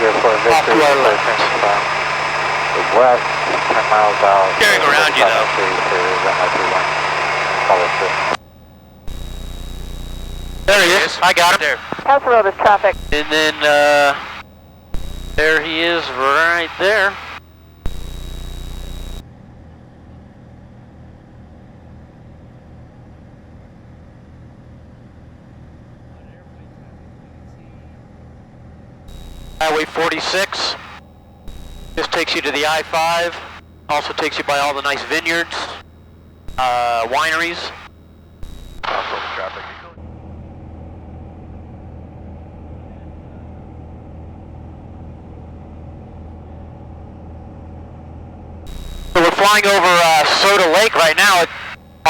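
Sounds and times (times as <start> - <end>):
light aircraft engine droning: 0.0 - 10.1.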